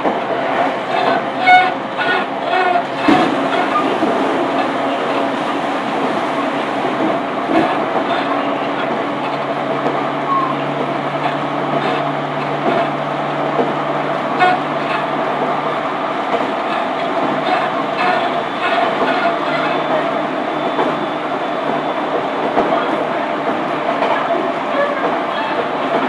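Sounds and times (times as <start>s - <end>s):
train wheels rolling on rail: 0.0s - 26.0s
held tones from traction equipment: 0.9s - 5.4s, 7.5s - 13.0s, 16.6s - 22.2s.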